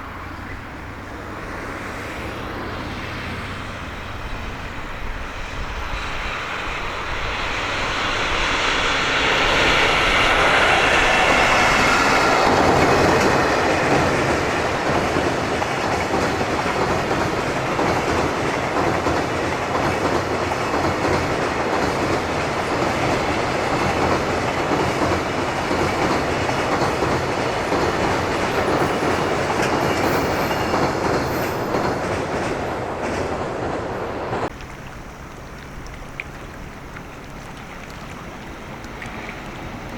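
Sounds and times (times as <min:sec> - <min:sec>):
freight train passing: 0:00.0 - 0:39.9.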